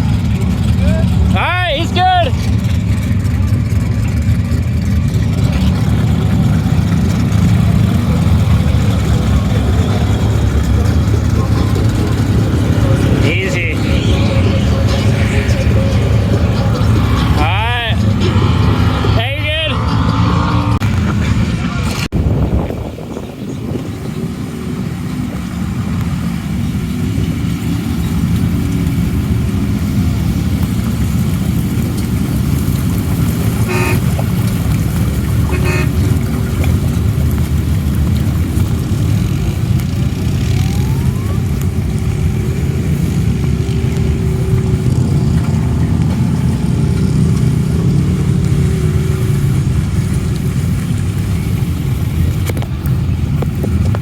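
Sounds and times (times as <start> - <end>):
off-road vehicle engine running: 0.0 - 54.0
short horn toots: 33.6 - 34.2, 35.4 - 36.1.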